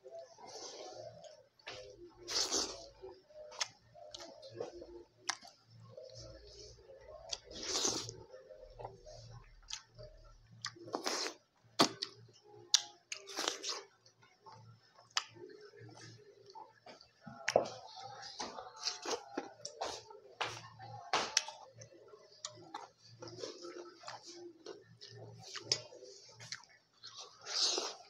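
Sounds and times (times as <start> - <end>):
chewing: 7.2 - 8.2, 21.4 - 28.0.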